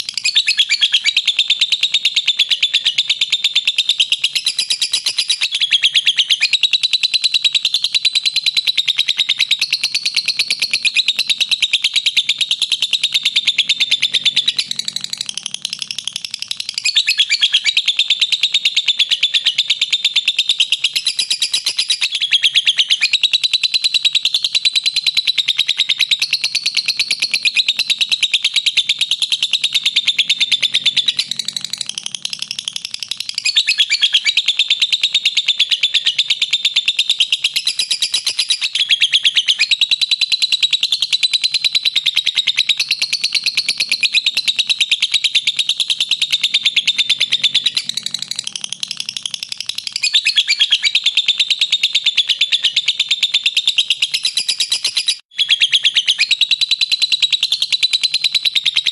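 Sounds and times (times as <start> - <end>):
lovebird rapid high chatter: 45.4 - 52.8.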